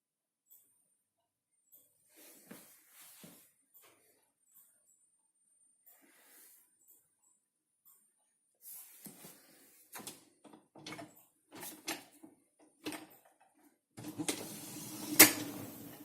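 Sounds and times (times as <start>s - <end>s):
dishwasher racks knocking and clattering: 10.0s - 12.1s, 14.0s - 16.0s
rack rolling along rails: 14.0s - 16.0s.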